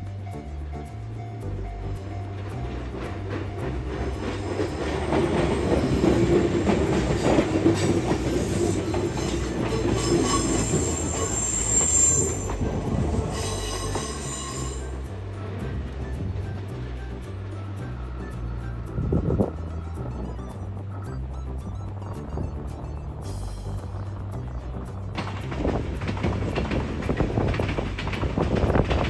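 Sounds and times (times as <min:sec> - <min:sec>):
train wheels rumbling on rails: 0:00.0 - 0:29.0
high-pitched wheel squeal: 0:02.9 - 0:15.2.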